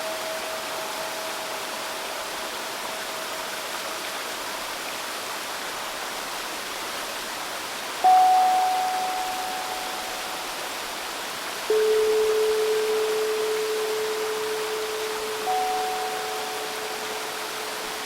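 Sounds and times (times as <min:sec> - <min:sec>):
stream babbling: 0:00.0 - 0:18.0
steel tongue drum notes: 0:08.0 - 0:11.0, 0:11.7 - 0:18.0.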